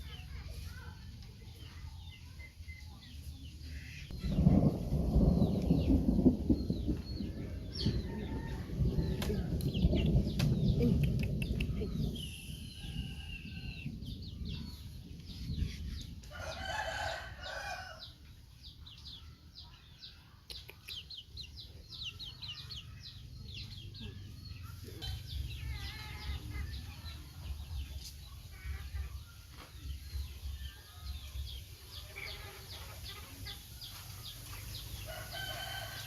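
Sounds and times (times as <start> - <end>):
low rumbling noise: 4.1 - 18.0
rooster crowing: 16.3 - 18.0, 35.1 - 36.0.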